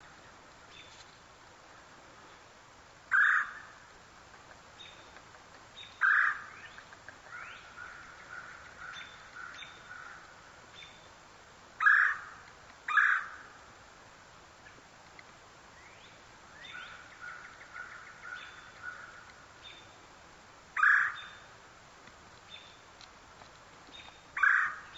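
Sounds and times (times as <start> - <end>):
loud harsh bird calls: 3.1 - 3.7, 6.0 - 10.3, 11.8 - 13.5, 20.8 - 21.5, 24.4 - 24.9
soft bird chirps: 4.7 - 11.1, 15.7 - 20.0, 22.4 - 22.9, 23.8 - 24.9.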